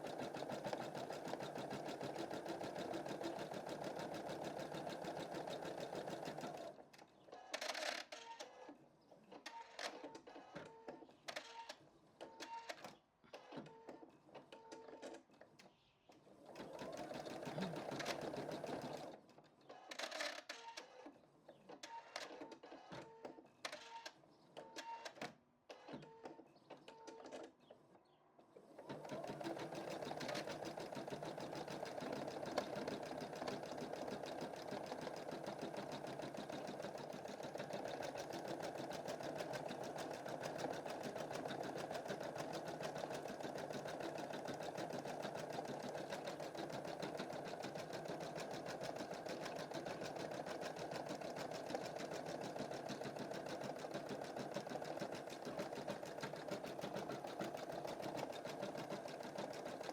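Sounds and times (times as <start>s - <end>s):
embroidery machine stitching: 0.0s - 6.8s, 16.4s - 19.2s, 28.7s - 59.9s.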